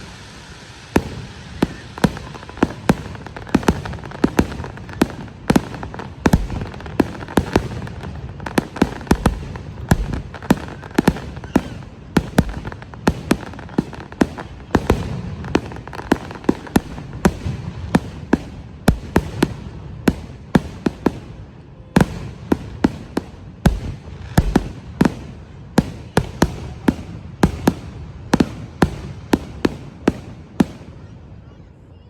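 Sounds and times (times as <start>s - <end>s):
fireworks banging: 0.0s - 31.1s.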